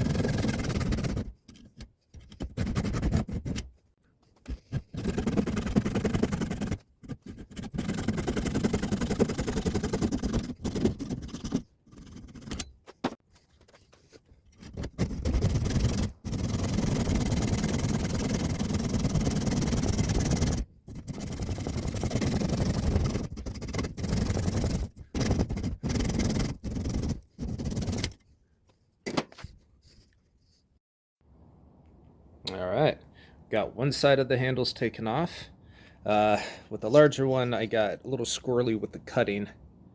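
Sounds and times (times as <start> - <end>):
bandsaw cutting wood and metal: 0.0 - 1.3, 14.7 - 28.2.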